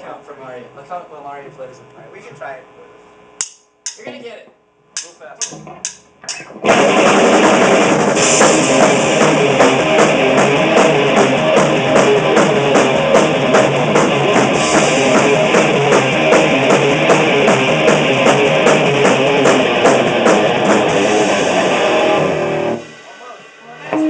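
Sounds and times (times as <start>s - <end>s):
rock band playing: 5.0s - 24.0s.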